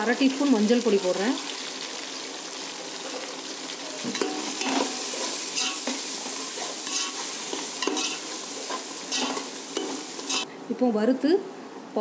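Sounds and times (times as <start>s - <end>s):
food sizzling in hot oil: 0.0s - 10.5s
metal ladle scraping pot: 4.1s - 10.5s.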